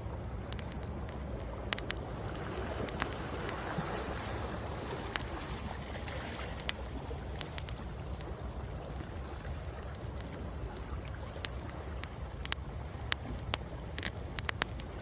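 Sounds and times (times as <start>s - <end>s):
wood fire crackling: 0.3s - 15.0s
ocean waves rushing: 1.5s - 8.5s.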